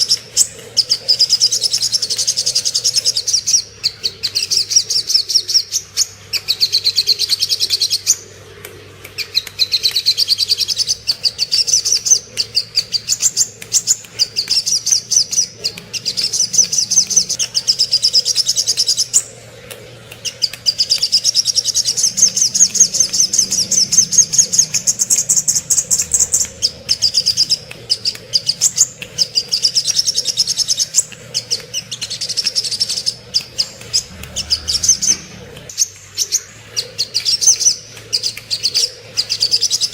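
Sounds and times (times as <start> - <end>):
bird song rapid chipping notes: 0.0 - 8.2, 9.2 - 39.9
faint steady hum: 0.0 - 39.9.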